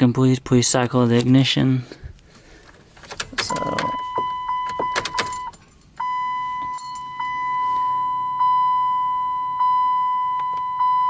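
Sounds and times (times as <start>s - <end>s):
car keys jangling: 2.2s - 7.4s
car warning chime dinging: 3.3s - 11.0s.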